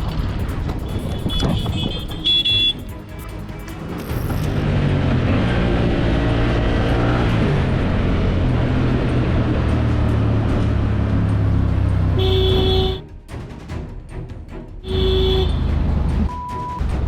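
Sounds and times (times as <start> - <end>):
road and wind noise: 0.0 - 13.0, 14.8 - 17.0
vehicle engine running: 0.0 - 13.0.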